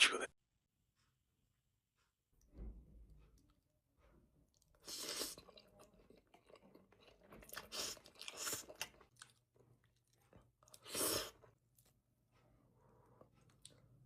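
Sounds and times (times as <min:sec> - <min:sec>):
chewing: 0:04.4 - 0:12.0, 0:12.7 - 0:14.0.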